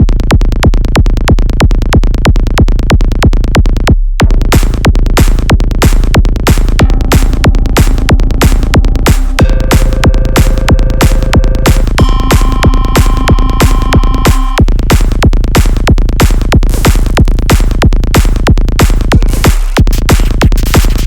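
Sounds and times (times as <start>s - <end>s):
drum machine kick beat: 0.0s - 21.0s
held synth tones: 9.4s - 14.6s.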